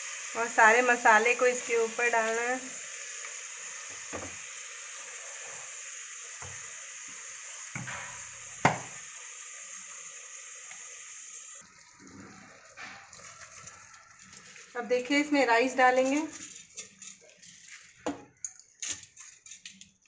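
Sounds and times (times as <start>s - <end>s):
chicken sizzling in hot fat: 0.0s - 20.0s
knock against cooker: 4.1s - 4.4s, 7.8s - 9.0s.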